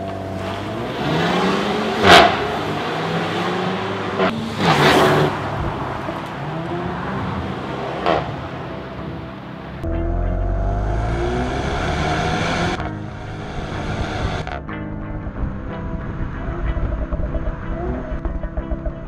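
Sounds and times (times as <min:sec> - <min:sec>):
car engine revving: 0:00.0 - 0:14.6
sharp exhaust cracks: 0:00.0 - 0:19.0.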